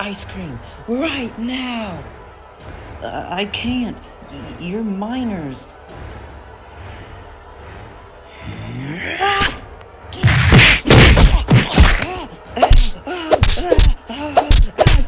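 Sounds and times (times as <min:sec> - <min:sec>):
cartoon thuds and whacks: 0:09.4 - 0:09.6, 0:10.2 - 0:15.0.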